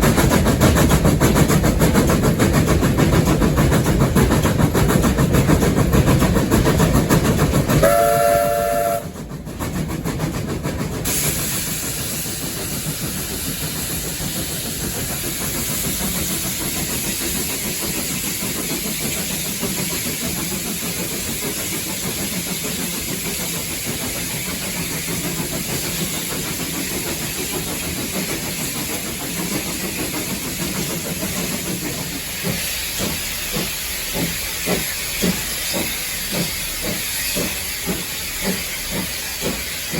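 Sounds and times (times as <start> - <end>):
steam hissing: 0.0 - 39.9
steam locomotive running: 0.0 - 39.9
locomotive whistle blast: 7.8 - 9.2.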